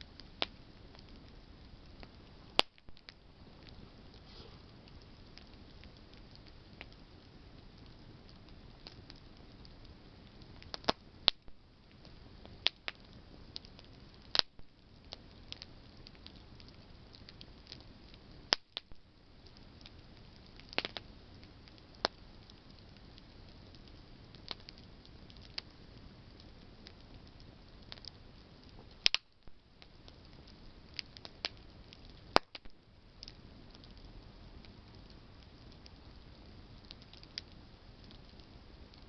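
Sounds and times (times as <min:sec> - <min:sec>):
campfire crackling and popping: 0:00.0 - 0:39.0
soft steady hiss: 0:00.0 - 0:39.0.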